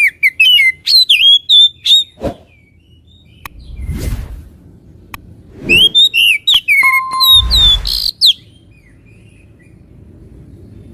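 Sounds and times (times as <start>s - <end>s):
songbird whistling and chirping: 0.0s - 4.0s, 5.6s - 10.0s
low rumble: 3.5s - 6.0s, 7.3s - 8.0s.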